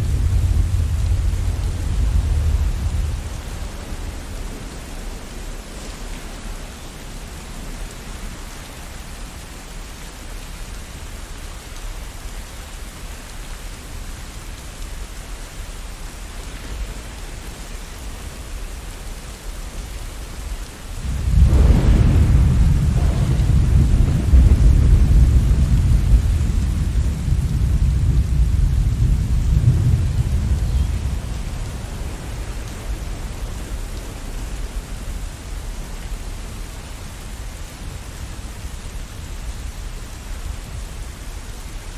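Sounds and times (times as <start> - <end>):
rolling thunder: 0.0 - 6.7, 21.0 - 35.8
steady rain: 0.0 - 41.9.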